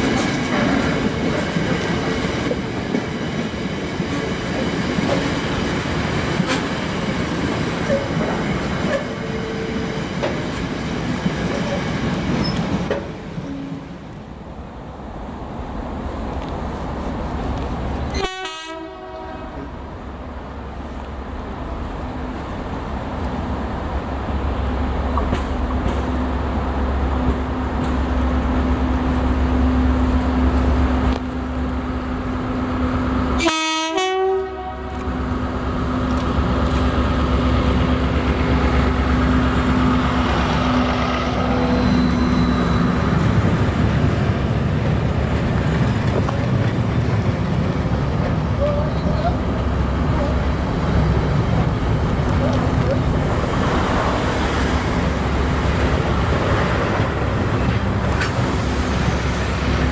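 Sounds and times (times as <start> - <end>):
train horn blast: 18.1 - 19.7, 33.4 - 35.1
locomotive droning: 25.0 - 59.9.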